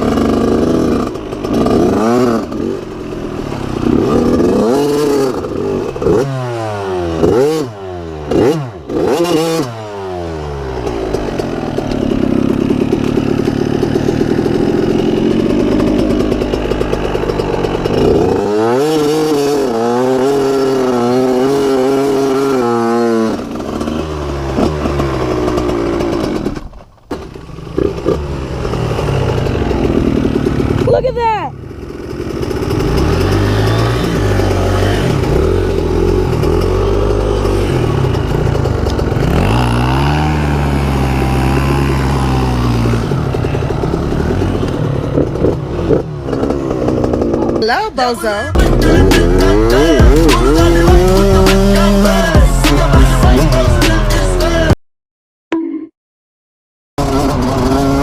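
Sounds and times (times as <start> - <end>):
dirt bike engine revving: 0.0 - 54.8, 57.0 - 58.0.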